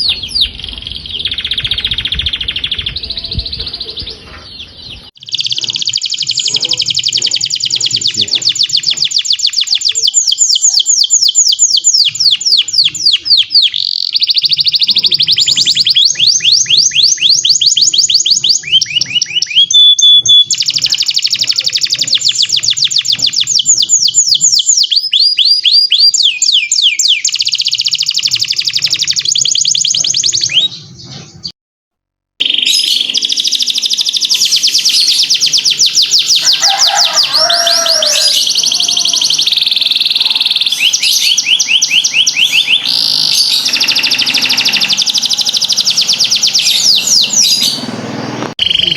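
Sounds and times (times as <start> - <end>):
canary singing trills: 0.0 - 31.5, 32.4 - 48.9.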